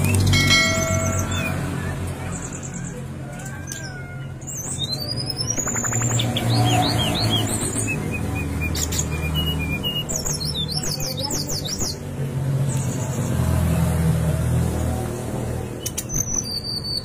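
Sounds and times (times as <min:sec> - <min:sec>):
bird singing whistles: 0:04.5 - 0:12.0, 0:15.8 - 0:17.0.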